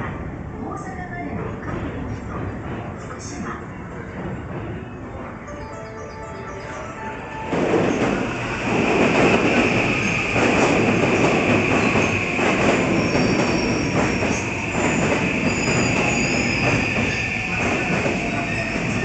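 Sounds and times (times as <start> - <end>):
train wheels rumbling and clacking: 1.1 - 5.5, 7.4 - 19.0
train squealing: 4.8 - 19.0.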